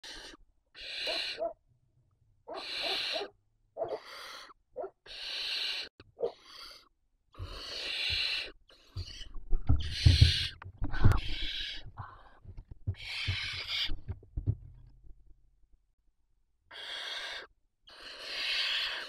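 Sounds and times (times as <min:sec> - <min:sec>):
owl chicks hissing: 0:00.0 - 0:01.5, 0:02.5 - 0:03.3, 0:03.9 - 0:12.4, 0:13.0 - 0:14.0, 0:16.7 - 0:19.0.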